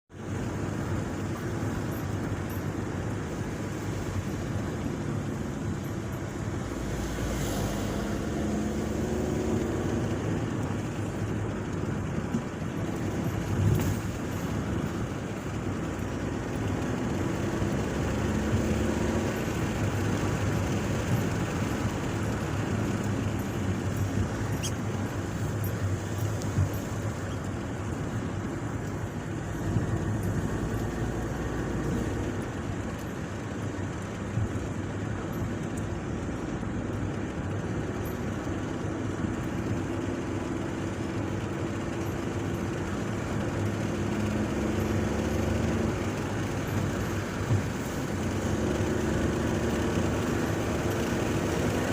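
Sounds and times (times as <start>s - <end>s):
road or wind noise: 0.0s - 51.9s
vehicle engine hum: 0.1s - 51.9s.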